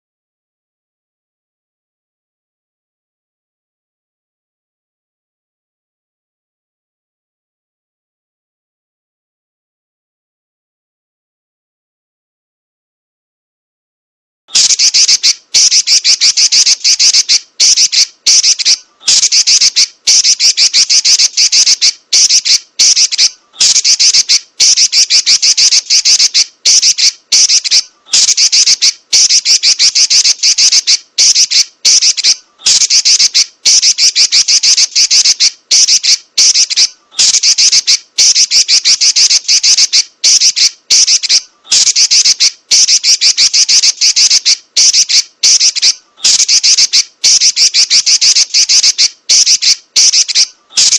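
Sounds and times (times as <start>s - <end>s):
bird chattering: 14.5s - 50.9s.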